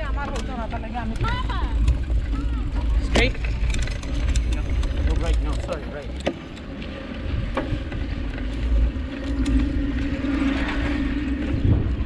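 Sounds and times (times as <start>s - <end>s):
wind rushing over microphone: 6.9s - 12.0s.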